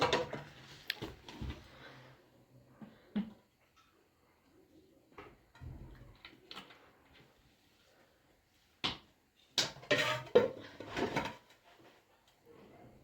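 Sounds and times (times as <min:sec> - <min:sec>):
household objects clattering: 0:00.0 - 0:01.9, 0:09.6 - 0:12.1.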